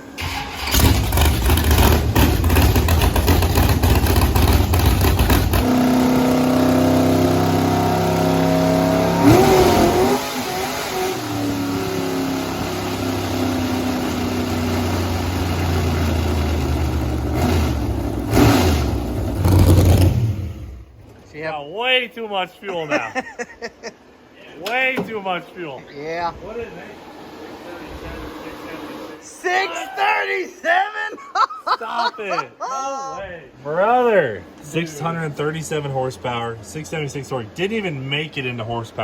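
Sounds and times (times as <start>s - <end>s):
engine at full throttle: 0.3s - 20.8s.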